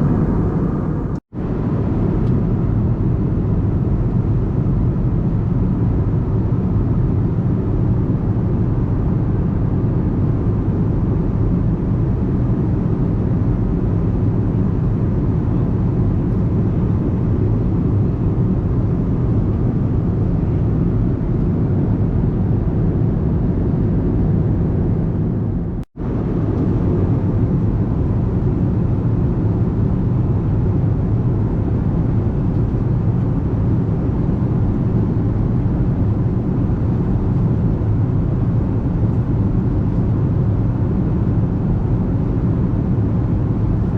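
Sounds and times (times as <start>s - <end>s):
airplane cabin engine drone: 0.0s - 43.9s.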